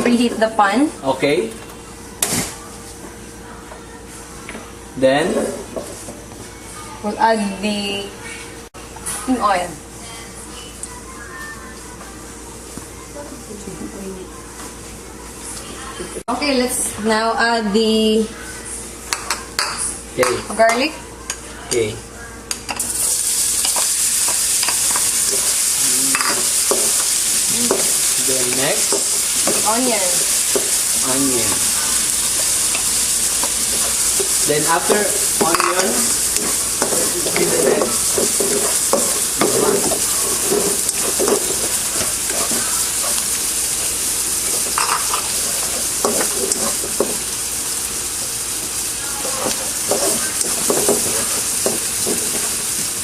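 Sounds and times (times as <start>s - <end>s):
garlic sizzling in hot oil: 22.8s - 53.0s
utensil scraping a pan: 33.4s - 43.2s.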